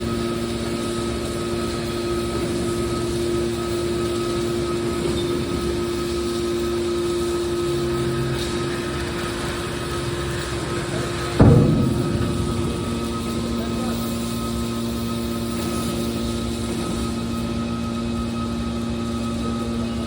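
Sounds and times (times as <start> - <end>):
metal baler mechanical hum: 4.9 - 20.0.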